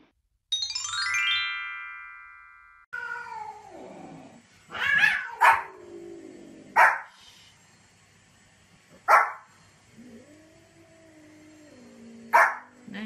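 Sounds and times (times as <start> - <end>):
chiming jingle: 0.5 - 2.9
dog barking: 5.0 - 5.7, 6.8 - 7.1, 9.1 - 9.5, 12.3 - 12.7.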